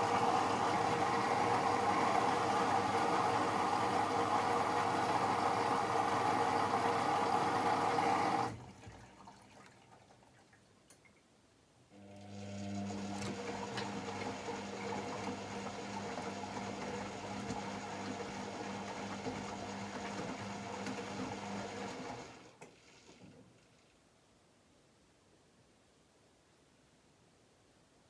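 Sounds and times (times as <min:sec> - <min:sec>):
washing machine motor hum: 0:00.0 - 0:09.0, 0:12.0 - 0:22.6.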